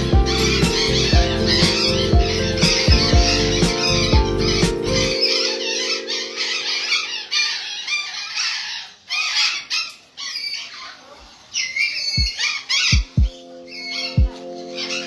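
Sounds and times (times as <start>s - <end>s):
birds chattering and squawking: 0.0s - 15.0s.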